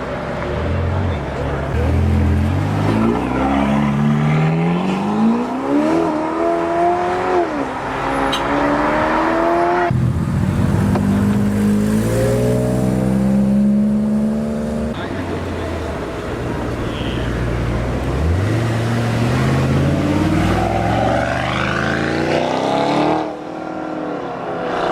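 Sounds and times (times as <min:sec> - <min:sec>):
sports car engine accelerating: 0:08.4 - 0:15.0.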